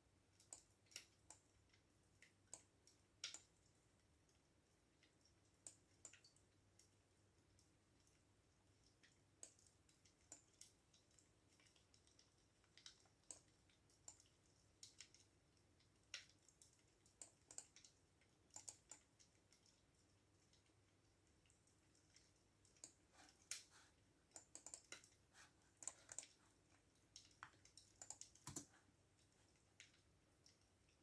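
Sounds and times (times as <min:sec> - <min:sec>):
typing on computer keyboard: 0:16.2 - 0:19.2, 0:24.3 - 0:25.2, 0:25.8 - 0:26.4, 0:27.2 - 0:28.7.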